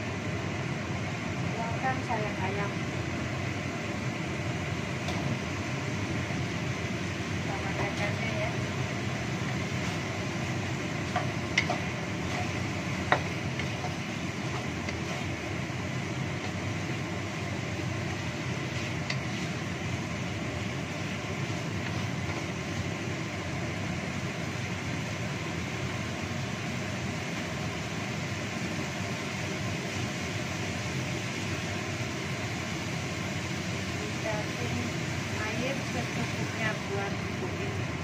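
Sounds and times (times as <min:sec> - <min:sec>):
chicken frying in wok: 0:00.0 - 0:38.0
wooden spatula knocking wok: 0:09.6 - 0:22.8.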